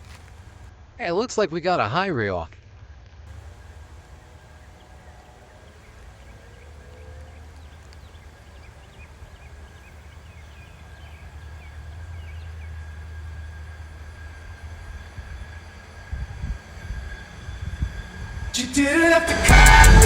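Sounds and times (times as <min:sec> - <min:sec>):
birds chirping: 0:03.3 - 0:18.5
truck rumbling on rails: 0:03.3 - 0:20.0.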